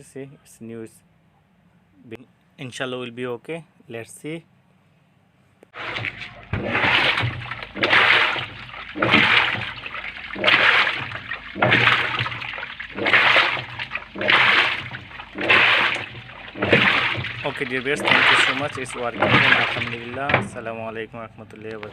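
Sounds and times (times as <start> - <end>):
motor hum: 5.8 - 20.7
water sloshing in washing machine: 5.8 - 21.0.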